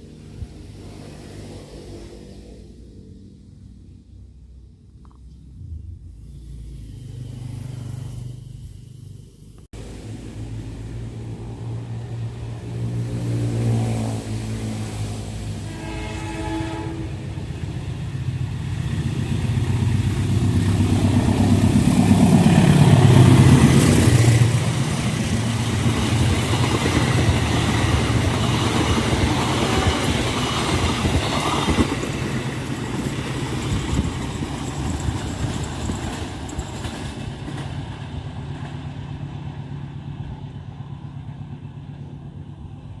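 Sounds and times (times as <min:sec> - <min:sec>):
diesel locomotive engine rumble: 0:02.0 - 0:43.0
train carriages clacking over rails: 0:19.0 - 0:38.0.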